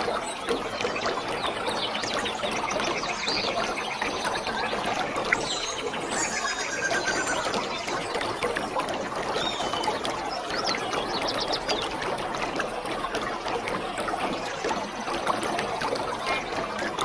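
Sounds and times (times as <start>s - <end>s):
waterfall roaring: 5.0s - 10.2s
short high chirps: 5.5s - 7.8s.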